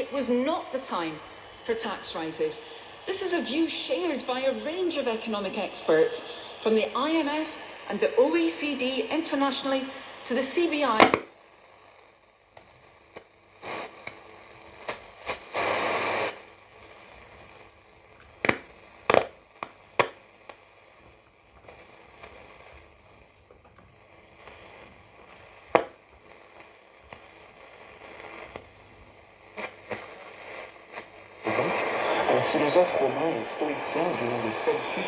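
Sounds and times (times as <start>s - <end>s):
radio static hiss: 0.0s - 35.0s
crackles and clicks: 10.9s - 35.0s.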